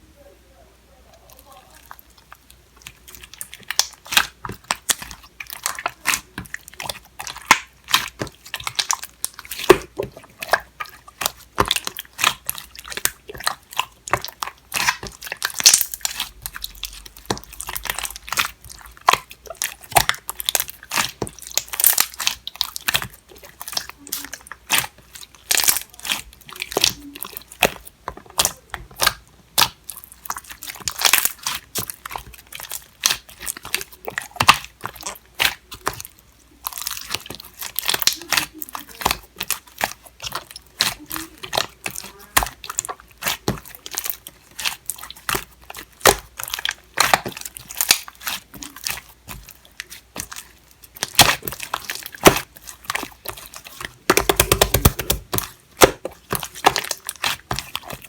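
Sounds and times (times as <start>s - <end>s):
slime popping and clicking: 54.1s - 57.7s.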